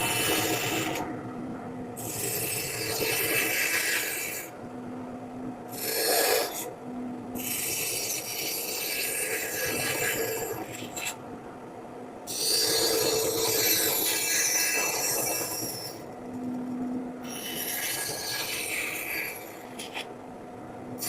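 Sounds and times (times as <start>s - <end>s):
carving tool scraping wood: 2.0s - 4.5s, 5.7s - 6.7s, 7.4s - 11.2s, 12.3s - 16.1s, 17.2s - 20.1s.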